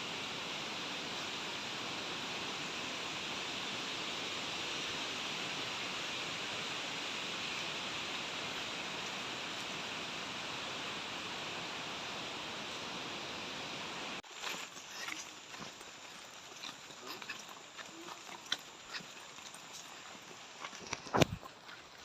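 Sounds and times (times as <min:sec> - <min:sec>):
waterfall roaring: 0:00.0 - 0:14.2.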